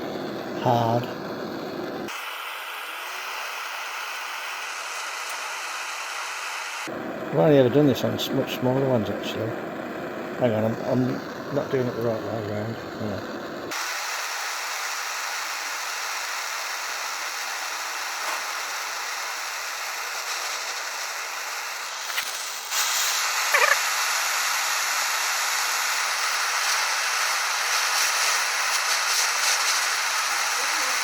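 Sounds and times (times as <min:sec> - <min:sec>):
blowtorch flame hissing: 0:00.0 - 0:31.0.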